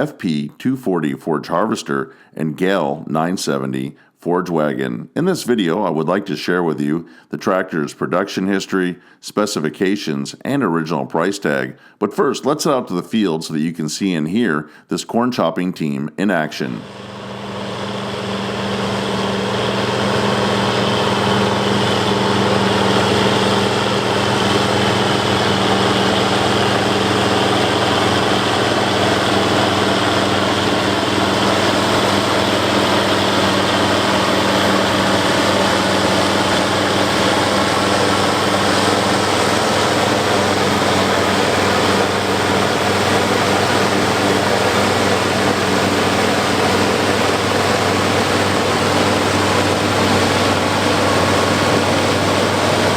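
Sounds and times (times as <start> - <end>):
forage harvester rushing: 16.8 - 52.9
tractor diesel engine under load: 16.8 - 52.9.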